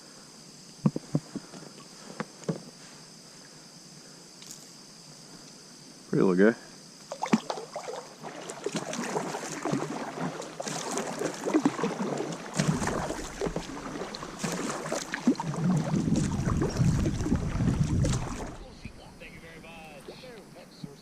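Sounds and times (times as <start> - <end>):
knocks against the boat: 0.8 - 1.4
water splashing around a kayak: 7.1 - 19.0
low rumble: 15.7 - 19.8.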